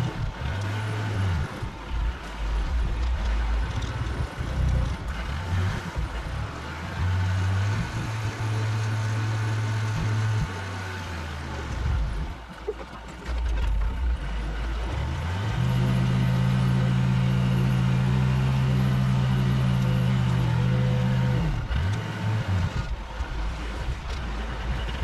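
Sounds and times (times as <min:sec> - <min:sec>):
road noise: 0:00.0 - 0:25.0
truck engine running: 0:00.0 - 0:25.0.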